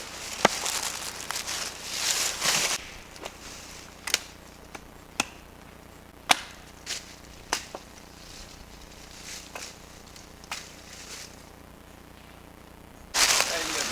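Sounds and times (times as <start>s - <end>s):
rustle: 0.0s - 4.7s, 6.6s - 11.7s, 13.1s - 13.9s
axe chopping wood: 4.0s - 5.5s, 6.2s - 7.9s.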